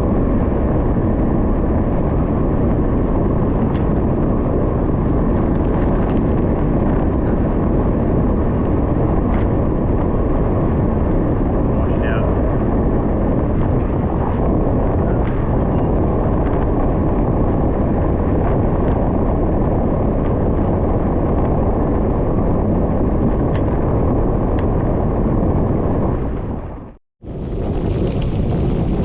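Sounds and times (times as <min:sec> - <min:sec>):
wind rumble on microphone: 0:00.0 - 0:29.0
bicycle tyres on gravel: 0:27.2 - 0:29.0.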